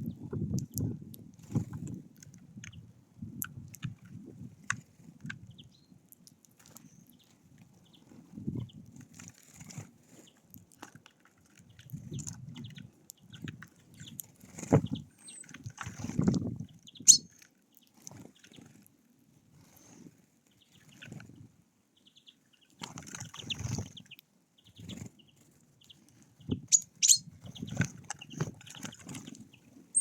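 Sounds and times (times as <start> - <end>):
birds scuffling on feeder: 6.6 - 21.6, 22.3 - 30.0
faint high bird chirps: 14.8 - 15.5, 16.9 - 17.3, 26.4 - 30.0
wing flutters: 26.5 - 30.0.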